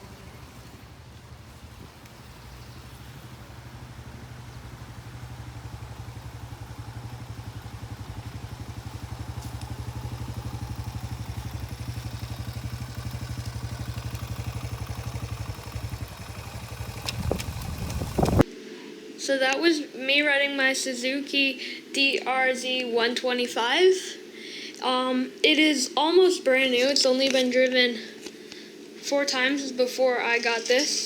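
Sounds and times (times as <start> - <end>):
dirt bike engine running: 0.0 - 18.5.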